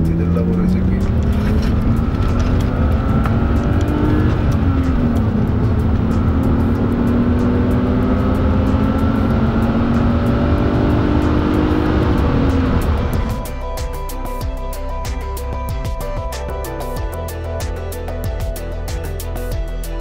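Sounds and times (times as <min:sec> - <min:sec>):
car engine accelerating: 0:00.0 - 0:17.1.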